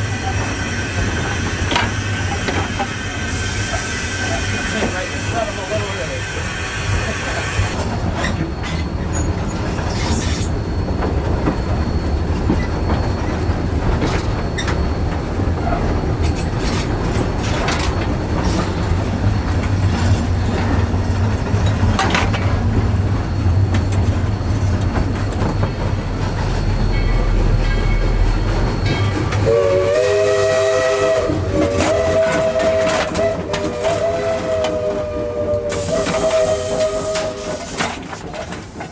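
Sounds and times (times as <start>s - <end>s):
steam train rumble: 0.0s - 38.9s
wheels clicking over rail joints: 12.3s - 28.0s, 35.8s - 38.9s
steam whistle: 29.4s - 37.8s.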